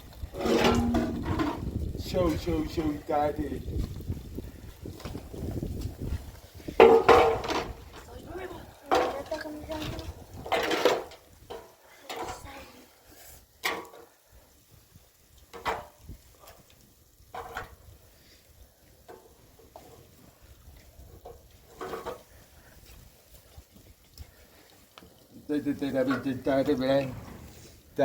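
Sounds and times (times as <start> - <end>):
household objects knocking and clinking: 0.4 - 1.7.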